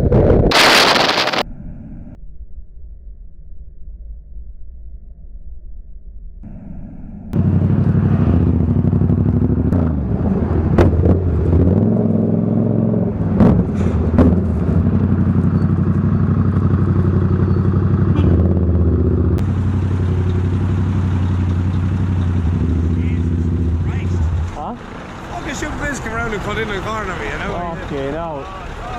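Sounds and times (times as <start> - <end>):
faint low rumble: 1.4 - 7.5
motorcycle engine running: 7.4 - 11.3, 14.2 - 24.8.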